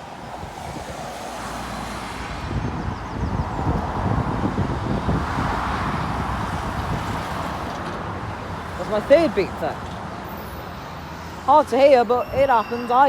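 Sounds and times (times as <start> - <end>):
wind buffeting microphone: 0.0 - 10.2
road traffic passing: 0.0 - 13.0.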